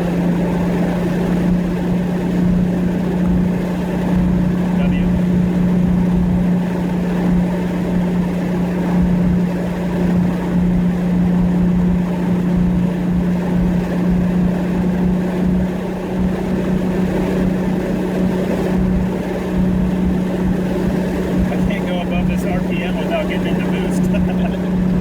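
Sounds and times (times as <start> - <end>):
car engine cruising: 0.0 - 25.0
road noise: 18.5 - 25.0.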